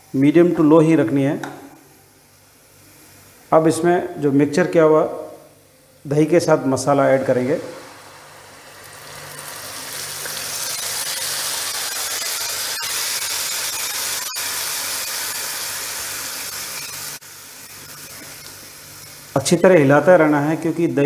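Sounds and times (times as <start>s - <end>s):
mixture sizzling in hot oil: 5.9s - 21.0s.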